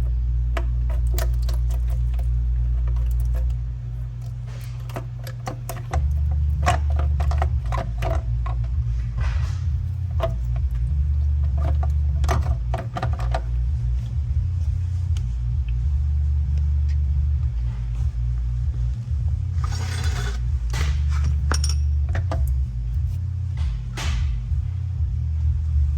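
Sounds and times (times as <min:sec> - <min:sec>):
steady low rumble: 0:00.0 - 0:25.9
metal tools and bolts clinking: 0:00.6 - 0:03.6, 0:04.2 - 0:08.7, 0:19.8 - 0:22.6.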